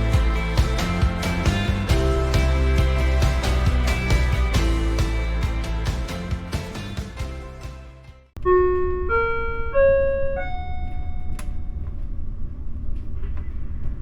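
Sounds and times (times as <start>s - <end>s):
rising public-address chime: 8.4s - 11.4s
low rumble: 8.4s - 14.0s.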